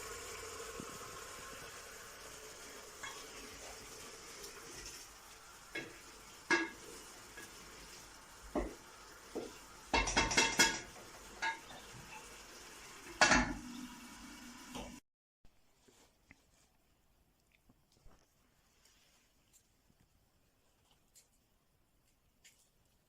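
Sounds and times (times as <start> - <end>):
faint frying sizzle: 0.0 - 15.0.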